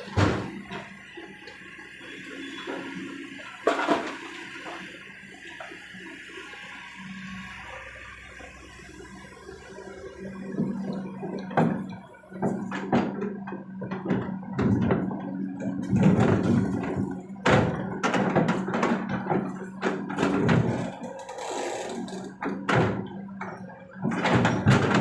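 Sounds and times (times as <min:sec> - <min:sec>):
excavator diesel engine running: 0:00.0 - 0:25.0
bucket load knocks and thuds: 0:11.5 - 0:20.9, 0:24.0 - 0:25.0.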